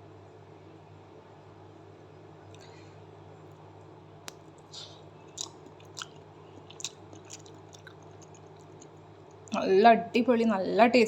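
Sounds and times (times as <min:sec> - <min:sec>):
low steady hum: 0:00.0 - 0:11.0
mouth smacks and clicks: 0:04.3 - 0:09.6.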